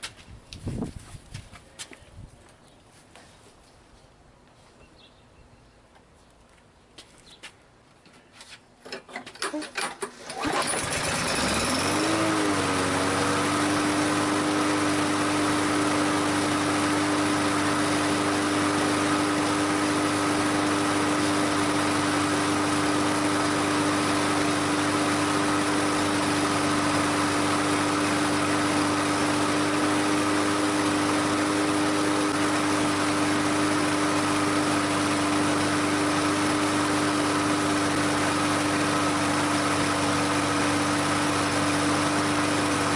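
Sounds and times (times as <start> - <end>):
lawn mower engine running: 8.8 - 42.9.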